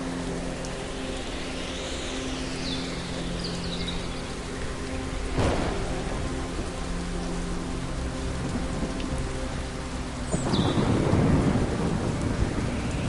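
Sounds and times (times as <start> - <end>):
steady rain: 0.0 - 13.0
thunder crack: 5.4 - 5.9.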